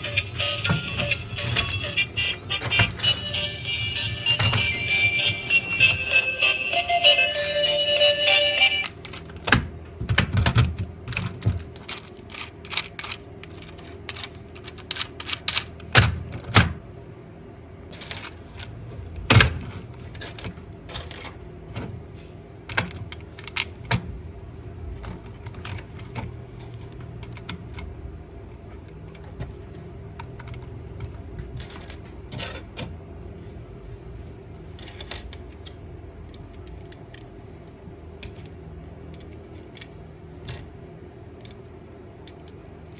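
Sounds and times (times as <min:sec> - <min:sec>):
faint steady hum: 0:00.0 - 0:09.5
plastic toy parts clicking: 0:11.1 - 0:16.1, 0:34.8 - 0:37.3, 0:38.2 - 0:40.7, 0:41.4 - 0:42.9.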